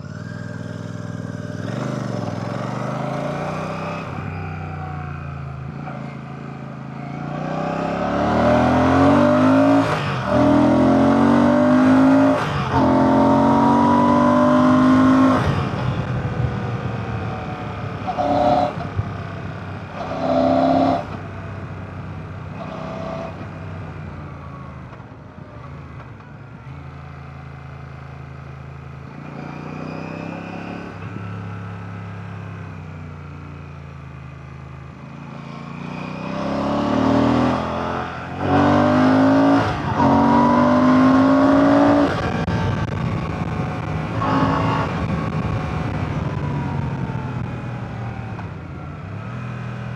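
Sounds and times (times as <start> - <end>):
motorcycle engine accelerating: 0.0 - 49.9
motorcycle throttle blips: 41.4 - 49.2.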